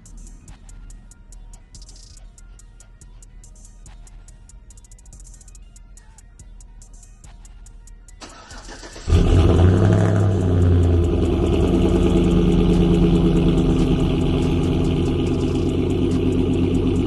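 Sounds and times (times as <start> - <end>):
truck engine starting and idling: 8.2 - 17.0.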